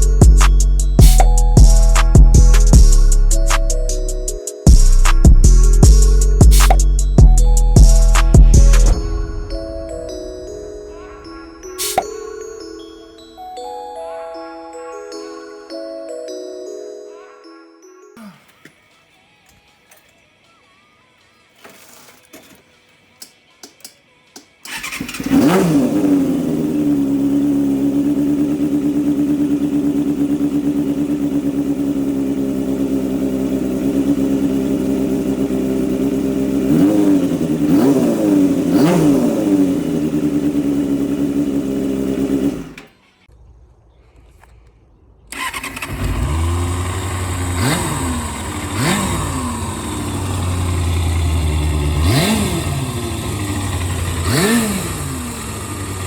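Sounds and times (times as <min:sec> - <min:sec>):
motorcycle engine revving: 0:24.6 - 0:43.0, 0:45.3 - 0:56.0.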